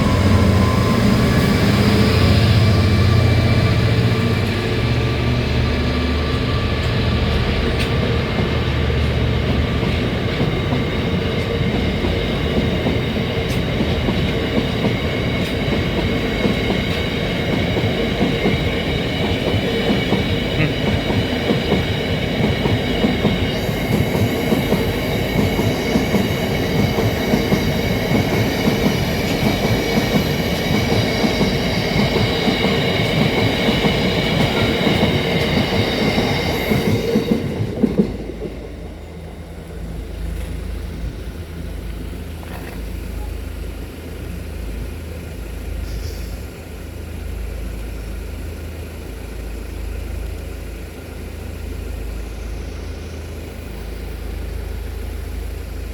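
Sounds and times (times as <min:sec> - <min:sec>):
train engine hum: 0:00.0 - 0:55.9.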